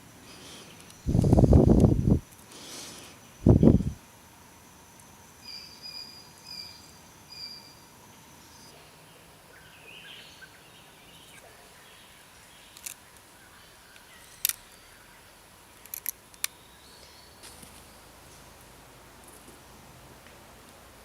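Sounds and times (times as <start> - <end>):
faint outdoor background: 0.0 - 21.0
bird chirps: 5.4 - 7.8.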